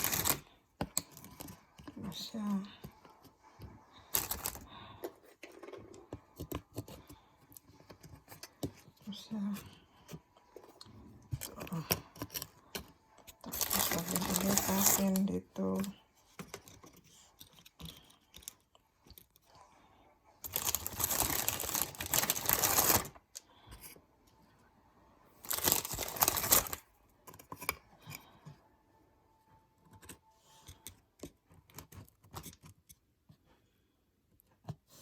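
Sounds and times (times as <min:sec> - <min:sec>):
packaging rustling and tearing: 0:00.0 - 0:00.5, 0:04.1 - 0:04.6, 0:13.3 - 0:15.9, 0:20.4 - 0:23.2, 0:25.4 - 0:26.8.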